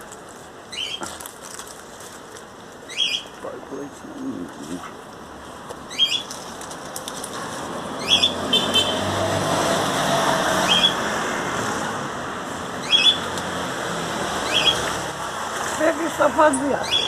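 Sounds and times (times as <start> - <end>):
bird chirping: 2.9 - 3.3, 5.9 - 6.3, 8.0 - 8.4, 12.8 - 13.2, 14.4 - 14.9, 16.8 - 17.0
vehicle passing by: 7.3 - 17.0.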